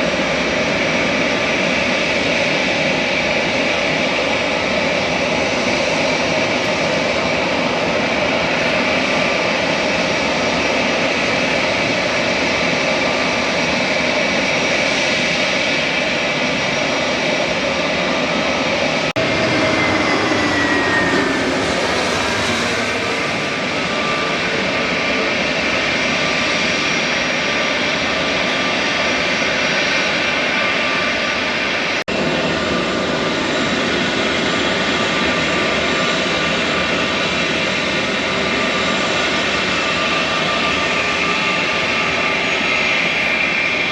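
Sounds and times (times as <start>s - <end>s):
aircraft passing with falling whine: 0.0s - 43.9s
jet engines running: 0.0s - 43.9s.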